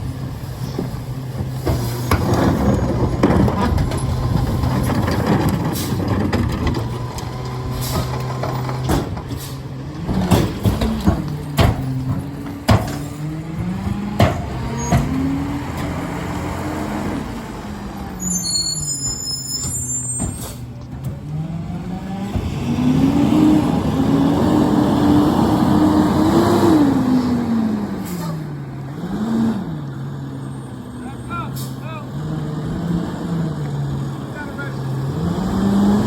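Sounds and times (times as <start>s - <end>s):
diesel truck engine revving: 0.0s - 36.0s
high squeal: 18.1s - 20.6s.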